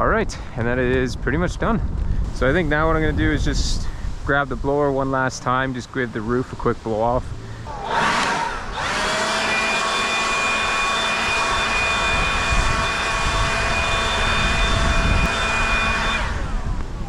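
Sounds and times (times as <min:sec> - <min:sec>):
leaf blower running: 0:07.7 - 0:17.0.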